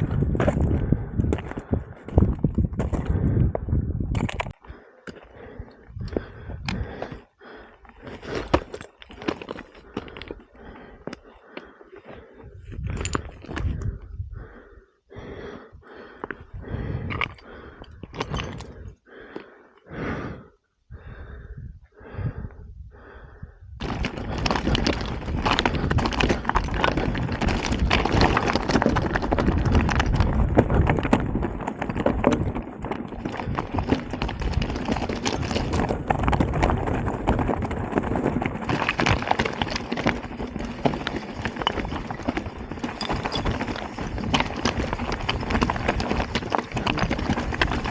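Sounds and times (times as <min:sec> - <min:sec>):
mountain bike rolling over rocks: 0:00.0 - 0:14.5, 0:16.1 - 0:19.5, 0:23.8 - 0:47.9
tyres on loose stones: 0:00.0 - 0:14.7, 0:15.8 - 0:19.6, 0:23.8 - 0:47.9
bike rattling: 0:23.8 - 0:47.9.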